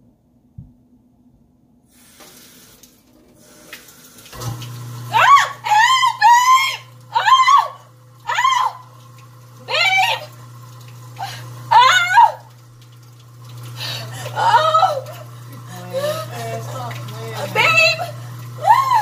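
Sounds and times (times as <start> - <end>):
garbage disposal humming: 1.9 - 19.0
faucet running into sink: 2.0 - 19.0
woman screaming: 5.1 - 8.9, 9.6 - 10.3, 11.2 - 12.5, 13.9 - 16.6, 17.4 - 19.0.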